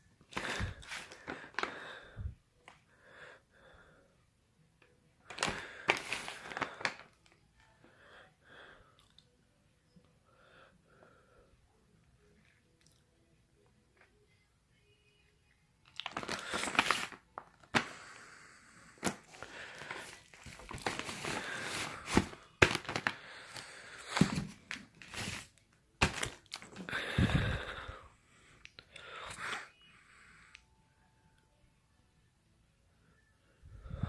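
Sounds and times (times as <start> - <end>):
packaging tearing and crinkling: 16.0 - 17.2, 19.7 - 23.2.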